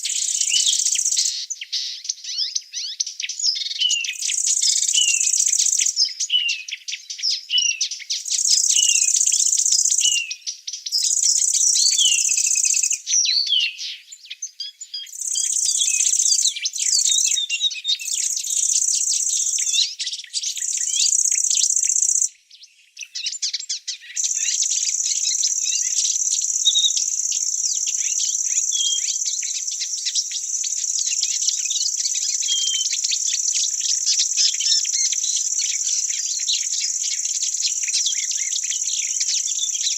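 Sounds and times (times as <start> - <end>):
birds chirping: 0.0 - 39.9
insects shrilling: 11.1 - 13.0, 15.1 - 17.4, 18.0 - 19.8, 20.5 - 22.3, 24.2 - 39.9.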